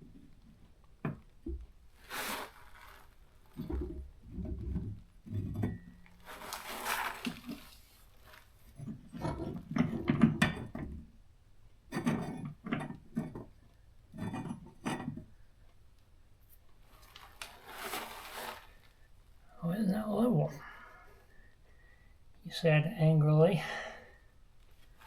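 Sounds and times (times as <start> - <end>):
short scrape: 2.0 - 3.1
shelf boards knocking and clinking: 8.9 - 11.0.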